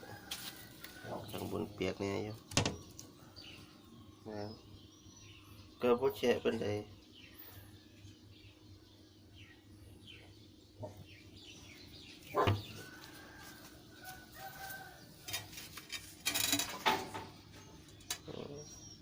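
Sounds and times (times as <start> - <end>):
rustling noise: 12.6 - 16.9.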